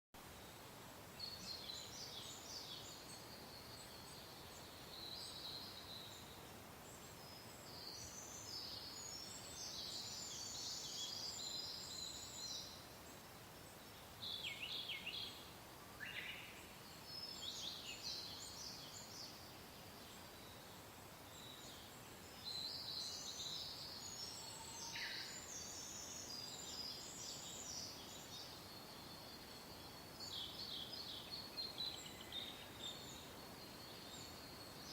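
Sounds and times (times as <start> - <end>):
soft wind hiss: 0.2 - 34.9
songbirds chirping and trilling: 0.4 - 34.9.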